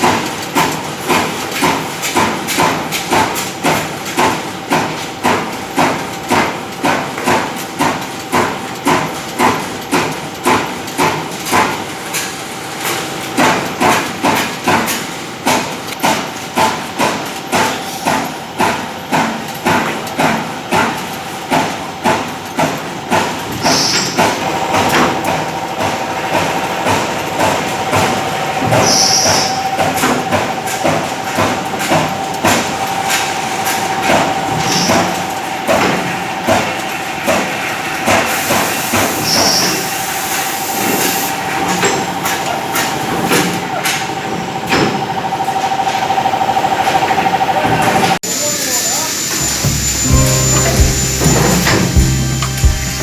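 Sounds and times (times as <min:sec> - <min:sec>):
punching machine strokes: 0:12.8 - 0:45.1, 0:48.9 - 0:53.0
steady machine whine: 0:44.0 - 0:53.0.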